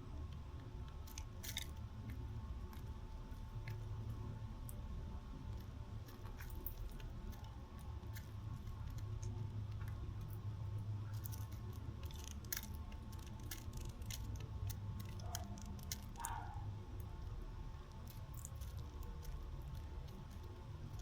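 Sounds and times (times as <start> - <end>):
steady low hum: 0.0 - 21.0
birds pecking seed: 0.2 - 21.0.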